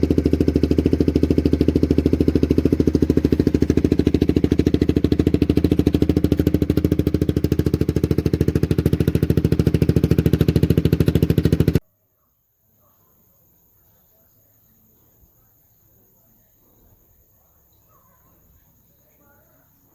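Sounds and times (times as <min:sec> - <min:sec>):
motorcycle engine idling: 0:00.0 - 0:11.8.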